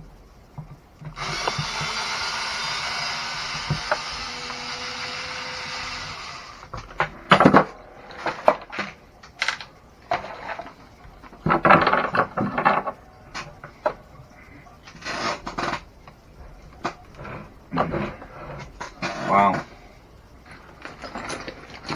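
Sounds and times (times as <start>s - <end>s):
steady hiss: 0.0s - 21.9s
plastic parts clicking and scraping: 6.6s - 14.1s, 20.5s - 21.9s.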